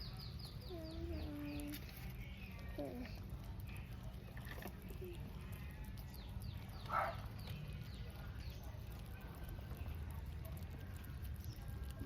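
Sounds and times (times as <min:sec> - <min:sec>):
cats licking and smacking: 0:00.0 - 0:12.0.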